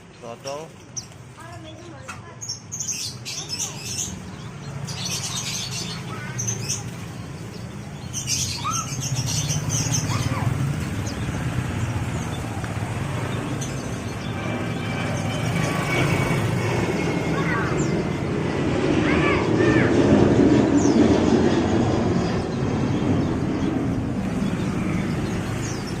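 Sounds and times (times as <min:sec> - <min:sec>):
songbirds chirping: 0:00.0 - 0:18.6, 0:20.5 - 0:26.0
steady low rumble: 0:06.8 - 0:26.0.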